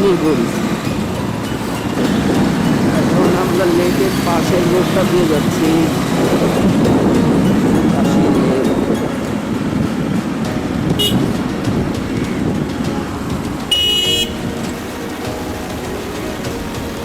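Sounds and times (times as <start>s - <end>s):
motorbike rumble: 0.0s - 8.8s
city road traffic: 0.0s - 17.0s
car horn honks: 11.0s - 11.4s, 13.7s - 15.0s.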